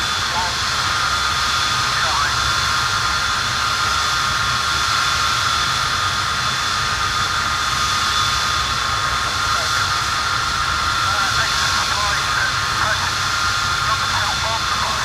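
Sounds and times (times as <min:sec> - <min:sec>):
high compressor whine: 0:00.0 - 0:15.0
jet engine roar: 0:00.0 - 0:15.0.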